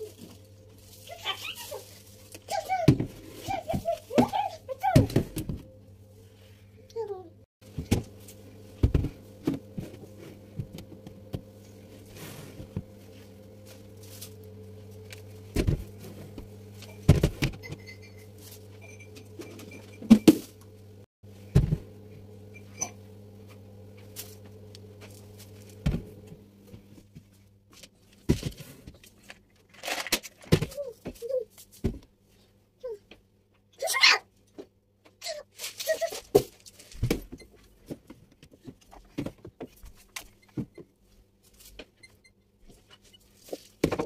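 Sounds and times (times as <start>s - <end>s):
steady low hum: 0.0s - 29.1s.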